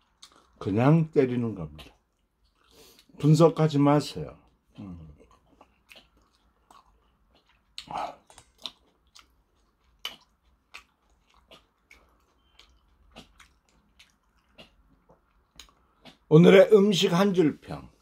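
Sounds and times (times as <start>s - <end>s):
person chewing food: 0.0s - 0.7s, 1.6s - 3.3s, 4.4s - 16.3s.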